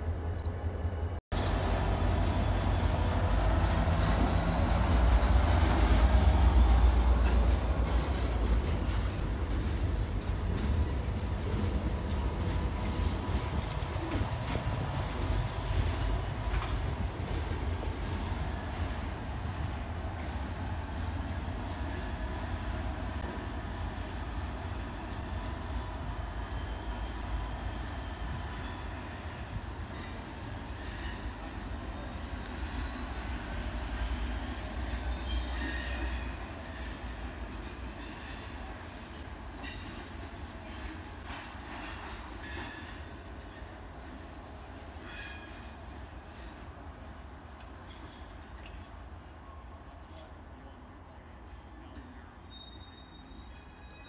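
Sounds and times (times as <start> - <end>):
freight train rumble: 0.0 - 54.0
high-pitched wheel squeal: 2.0 - 9.0
clicks of train wheels: 2.9 - 24.2, 28.2 - 44.2, 45.0 - 50.7.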